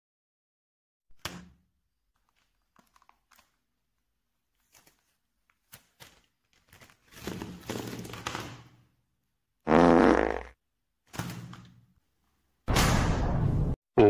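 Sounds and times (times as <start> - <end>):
packaging rustling and tearing: 2.1 - 8.7.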